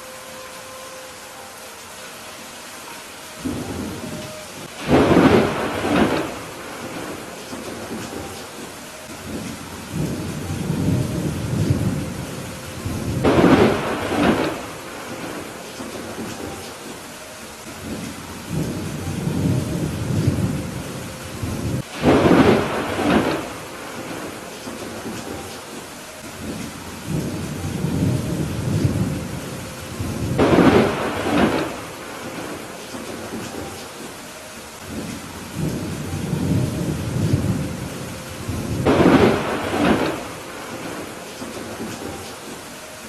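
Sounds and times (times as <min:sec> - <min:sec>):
steady rain: 0:00.0 - 0:43.0
thunder rumble: 0:03.4 - 0:17.1, 0:17.8 - 0:34.2, 0:34.8 - 0:42.6
sharp thunderclap: 0:04.8 - 0:08.4, 0:12.8 - 0:16.6, 0:21.4 - 0:25.4, 0:30.0 - 0:33.7, 0:38.4 - 0:42.2.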